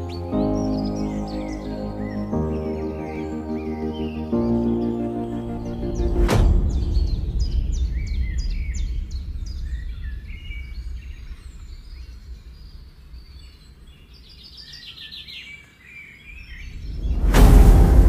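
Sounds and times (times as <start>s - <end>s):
birds chirping: 0.0s - 18.0s
low rumble: 4.5s - 14.0s, 16.5s - 18.0s.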